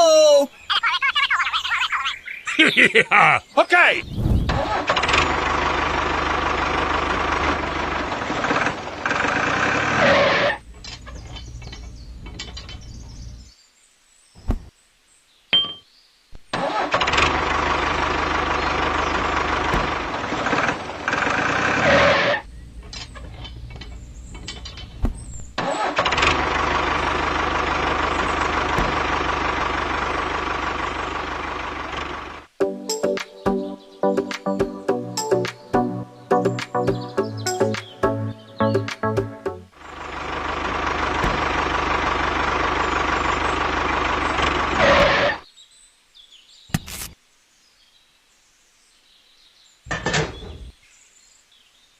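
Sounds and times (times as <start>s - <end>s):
tractor engine running: 4.5s - 13.5s, 16.5s - 32.6s, 36.4s - 45.4s.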